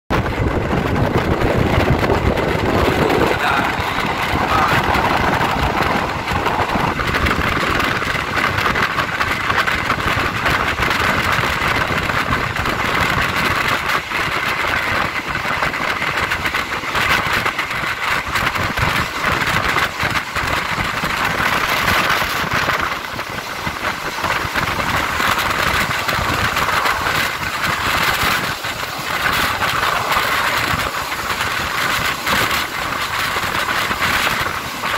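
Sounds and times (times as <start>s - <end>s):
train wheels on rails: 0.1s - 34.9s
air rushing past: 0.2s - 9.4s.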